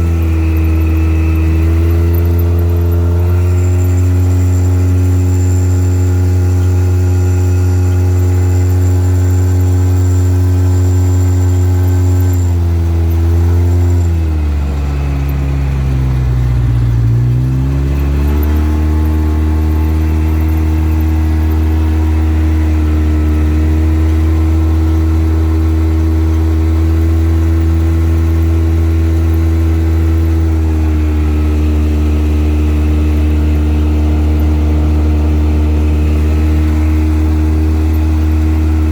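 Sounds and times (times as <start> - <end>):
vehicle engine droning: 0.0 - 38.9.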